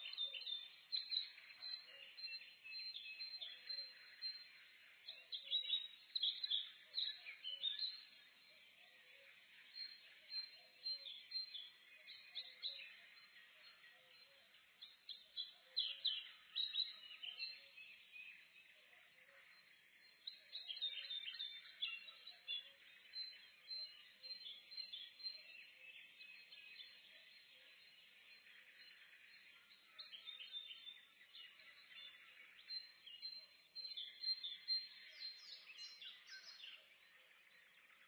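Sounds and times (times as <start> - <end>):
songbirds chirping and trilling: 0.0 - 38.0.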